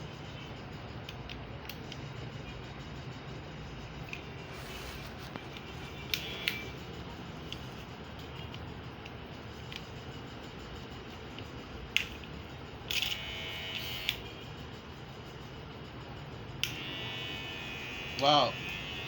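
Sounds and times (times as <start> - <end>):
steady low hum: 0.0 - 19.0
hair clipper blade clicks: 12.9 - 13.2, 16.6 - 16.9.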